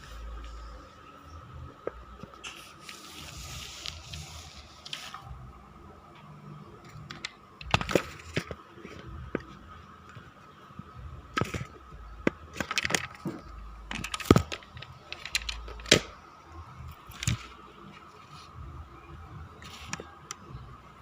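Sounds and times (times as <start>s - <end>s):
clicks and knocks of plastic toy: 7.0s - 8.6s, 11.4s - 16.1s.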